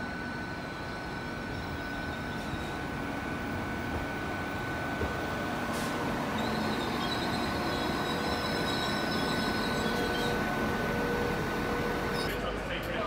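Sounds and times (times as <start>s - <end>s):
diesel train humming and whining: 0.0s - 13.0s
faint wavering high squeal: 0.1s - 3.7s, 6.2s - 11.3s.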